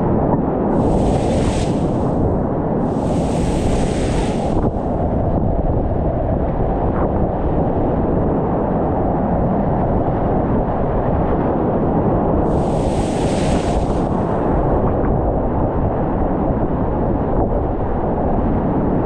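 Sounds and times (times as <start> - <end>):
water splashing hiss: 0.7 - 5.1, 12.4 - 14.8
rushing whitewater roar: 0.8 - 5.2, 12.5 - 14.8.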